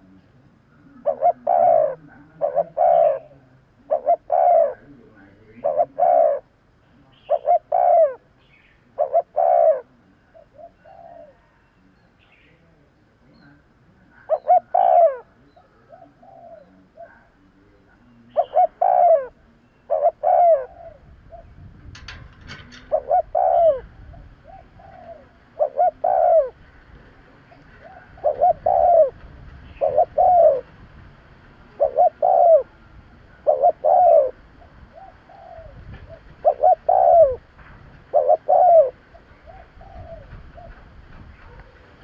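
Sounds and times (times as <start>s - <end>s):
dove cooing: 0.0s - 12.0s, 13.5s - 42.0s.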